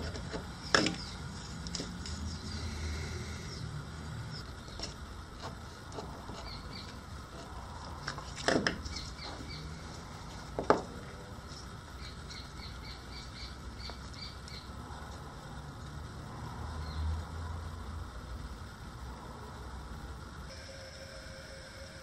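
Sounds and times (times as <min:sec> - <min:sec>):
small birds chirping: 0:00.5 - 0:05.0, 0:06.4 - 0:07.1, 0:08.8 - 0:10.0, 0:11.4 - 0:14.8.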